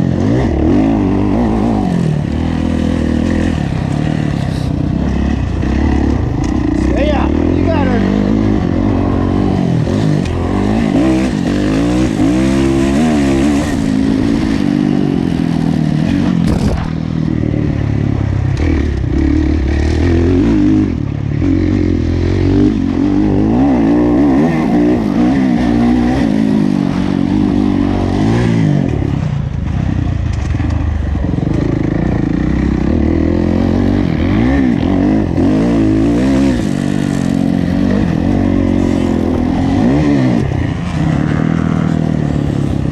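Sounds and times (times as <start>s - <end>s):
motocross engine revving: 0.0s - 42.9s.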